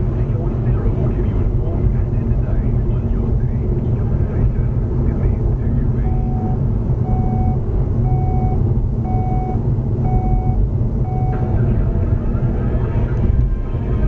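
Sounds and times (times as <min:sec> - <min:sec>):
vehicle road and engine noise: 0:00.0 - 0:14.0
electronic warning beep: 0:06.0 - 0:11.7.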